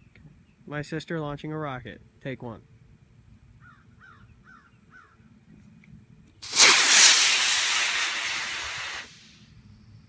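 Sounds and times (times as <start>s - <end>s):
rocket motor hissing: 6.4s - 9.4s.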